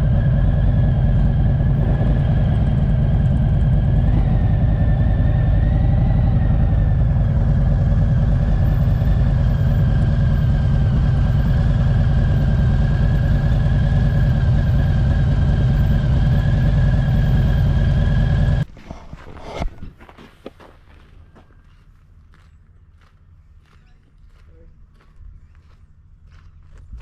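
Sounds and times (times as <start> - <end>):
motorcycle engine running: 0.0 - 18.7.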